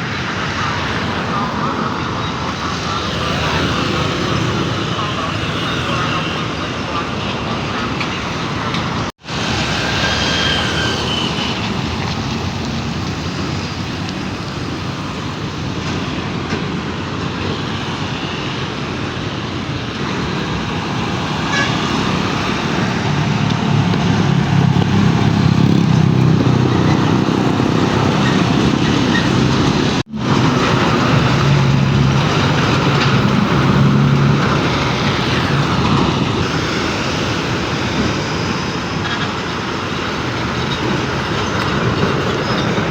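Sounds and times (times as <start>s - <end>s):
heavy truck traffic: 0.0s - 42.9s.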